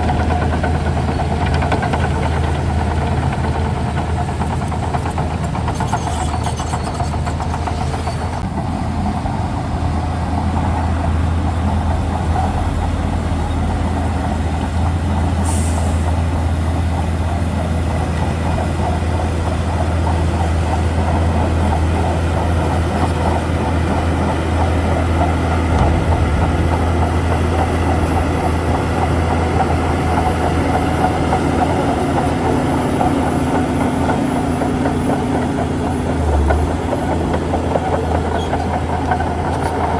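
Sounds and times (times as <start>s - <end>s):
bulldozer diesel engine drone: 0.0s - 39.9s.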